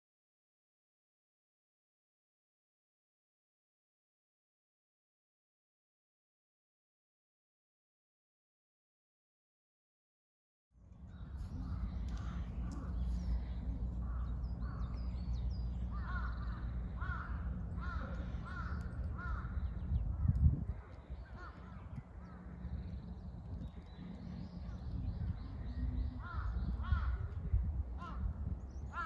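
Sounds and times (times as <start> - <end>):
small birds chirping: 10.8 - 29.0
wind rumble on microphone: 10.8 - 29.0
bird calling: 11.0 - 27.4.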